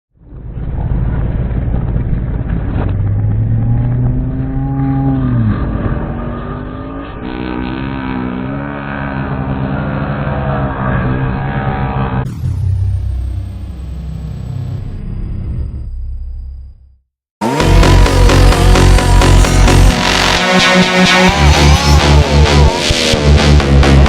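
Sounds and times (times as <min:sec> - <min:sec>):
rc truck engine revving: 0:17.4 - 0:24.0.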